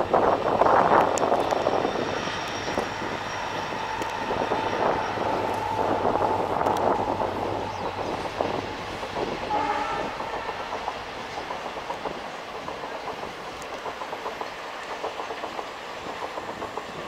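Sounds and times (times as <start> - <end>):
train wheels clicking over rail joints: 0.0 - 17.0
train horn note: 9.2 - 10.9.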